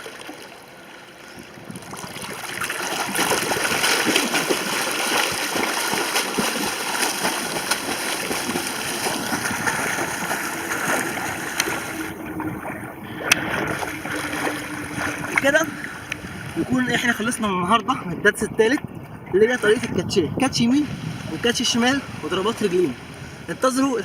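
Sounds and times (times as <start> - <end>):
swimmer splashing in water: 1.4 - 17.5.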